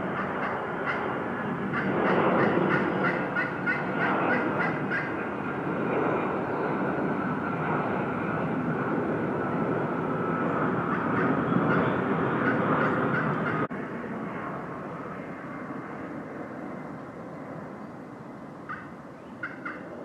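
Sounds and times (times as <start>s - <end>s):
turkey gobbling: 1.8s - 5.1s, 12.4s - 13.7s, 18.7s - 19.8s.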